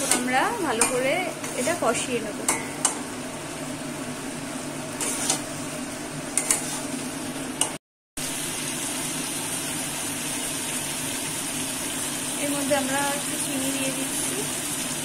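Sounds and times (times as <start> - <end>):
metal spatula scraping a pan: 0.0 - 2.1, 5.0 - 5.6, 6.4 - 7.0
masala sizzling in a pan: 0.0 - 15.0.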